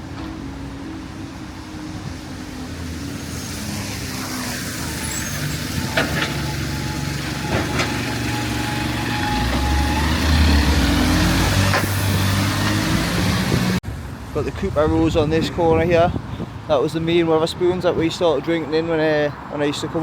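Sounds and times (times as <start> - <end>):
heavy vehicle engine rumbling: 0.0 - 20.0
tyre hiss on wet road: 1.9 - 6.0.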